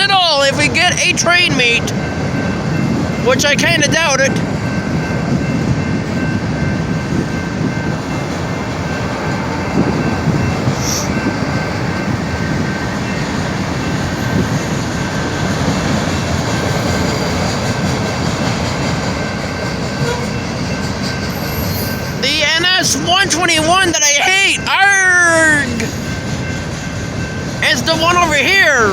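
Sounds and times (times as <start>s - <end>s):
freight train wheels rumbling on rail: 0.0s - 28.9s.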